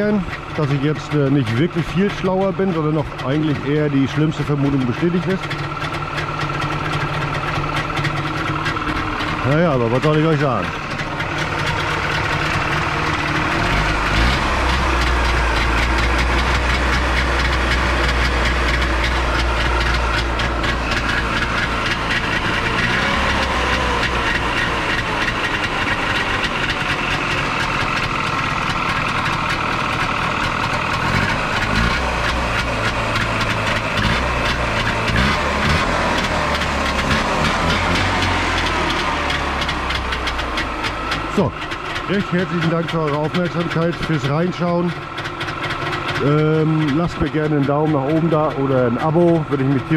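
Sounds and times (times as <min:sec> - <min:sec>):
two-stroke engine running: 0:00.0 - 0:49.9.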